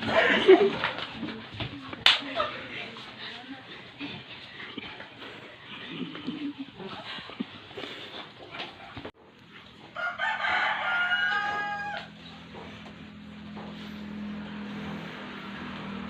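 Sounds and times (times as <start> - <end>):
rooster crowing: 9.9 - 12.6.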